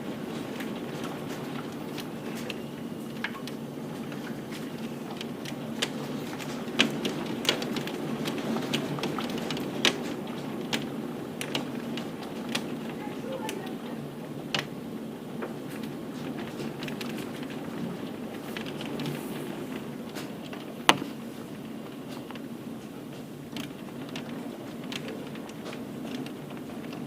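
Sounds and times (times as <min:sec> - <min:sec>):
rain falling: 0:00.0 - 0:27.0
hailstones striking hard surface: 0:00.2 - 0:14.8.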